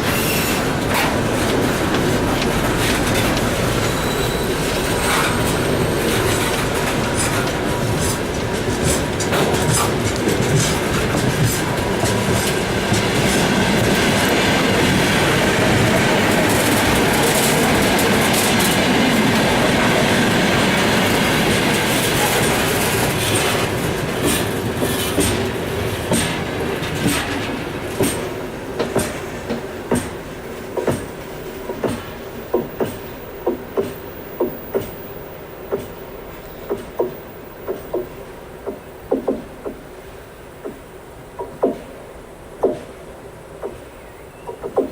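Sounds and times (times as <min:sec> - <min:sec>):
freight train wagons rumbling: 0:00.0 - 0:44.9
wheels clattering over rail joints: 0:00.0 - 0:44.9
wheel squeal: 0:03.2 - 0:07.4.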